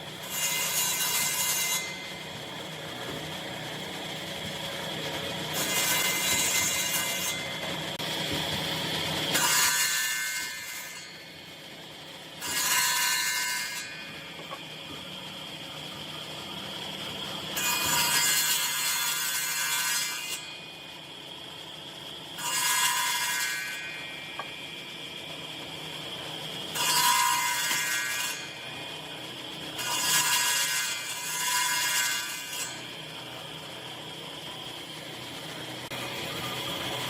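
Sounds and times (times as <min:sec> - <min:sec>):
woodworking power tool running: 0:00.0 - 0:37.0
tool cutting into wood: 0:05.5 - 0:07.7.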